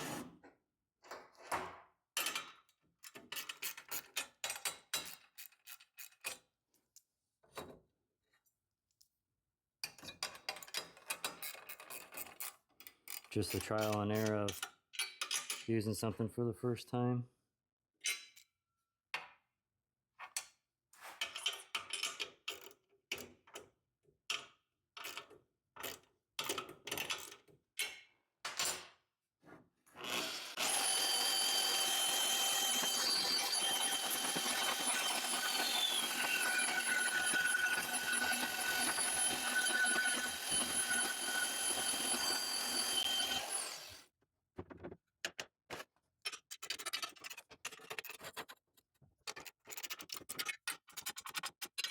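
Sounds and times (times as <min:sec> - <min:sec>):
bandsaw cutting metal tubing: 0:00.0 - 0:00.3, 0:30.0 - 0:44.0
metal parts clicking and knocking: 0:46.2 - 0:48.5.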